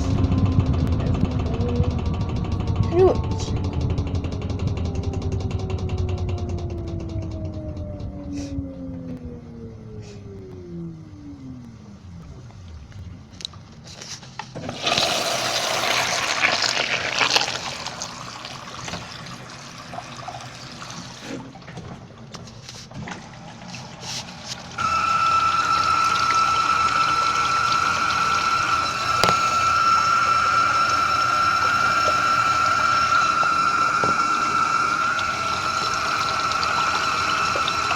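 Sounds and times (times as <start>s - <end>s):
water splashing in washing machine: 14.6s - 37.9s
whining rush of water: 14.6s - 37.9s.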